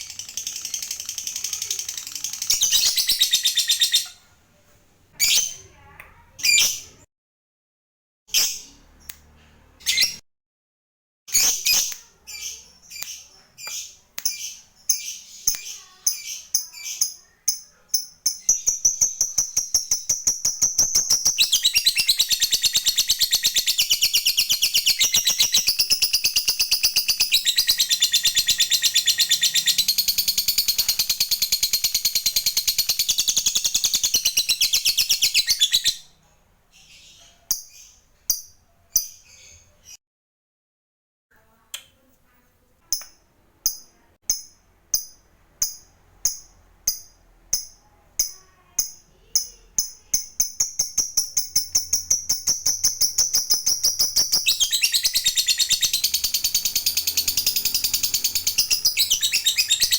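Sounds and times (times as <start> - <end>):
lovebird rattling chatter: 0.0 - 3.9, 50.4 - 59.9
lovebird chirps: 0.0 - 4.2, 8.3 - 10.2, 11.3 - 40.0, 42.9 - 59.9.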